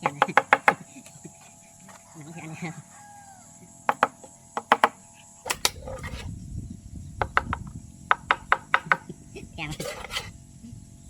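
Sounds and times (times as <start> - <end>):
sharp knocks and clicks: 0.0 - 0.8, 3.9 - 6.2, 7.2 - 9.1
insects chirping: 0.0 - 11.0.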